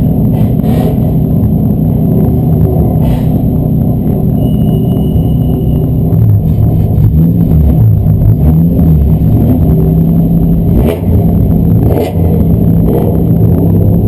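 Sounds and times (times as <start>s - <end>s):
race car engine running loud: 0.0s - 14.0s.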